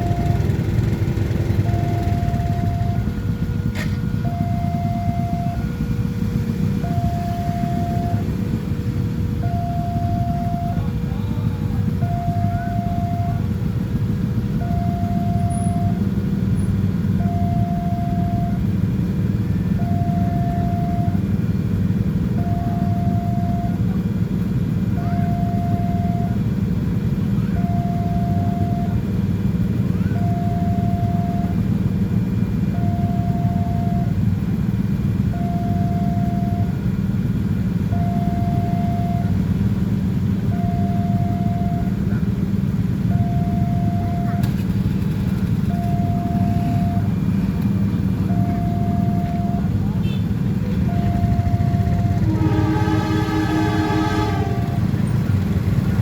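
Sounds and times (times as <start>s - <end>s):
level crossing two-tone alarm: 0.0s - 6.0s, 6.6s - 8.5s, 9.4s - 13.6s, 14.6s - 16.2s, 17.1s - 18.7s, 19.6s - 21.3s, 22.3s - 24.0s, 24.9s - 26.5s, 27.5s - 29.1s, 30.2s - 31.7s, 32.7s - 34.4s, 35.2s - 36.9s, 37.8s - 39.5s, 40.3s - 42.2s, 42.9s - 44.9s, 45.5s - 47.3s, 47.9s - 56.0s.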